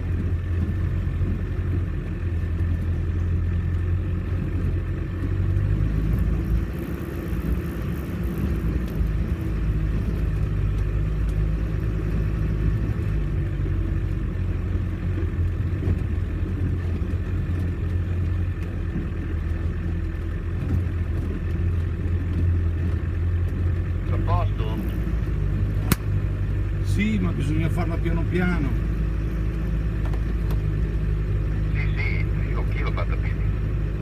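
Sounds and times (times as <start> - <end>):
engine running at low revs: 0.0 - 34.0.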